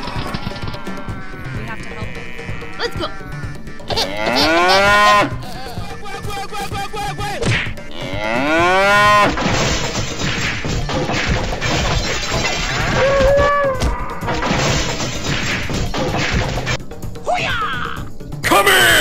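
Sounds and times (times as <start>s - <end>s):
cartoon cows mooing: 0.0s - 6.0s, 7.9s - 9.3s
whacks and crashes of a brawl: 9.2s - 16.8s.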